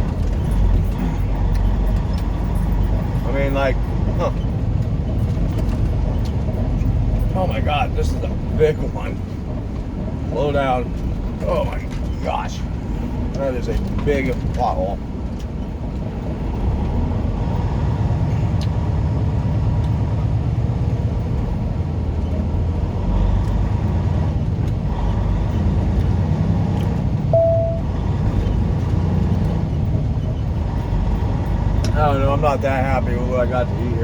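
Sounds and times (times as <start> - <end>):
truck engine and road noise: 0.0 - 34.0
short electronic beep: 27.3 - 27.9.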